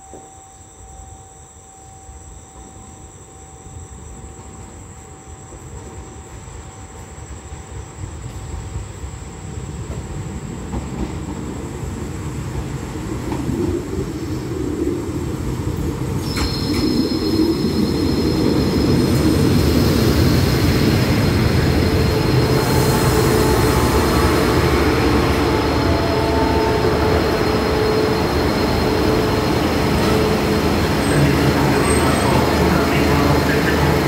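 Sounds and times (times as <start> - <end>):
train running-gear rumble: 8.0 - 34.0
high brake squeal: 16.2 - 34.0.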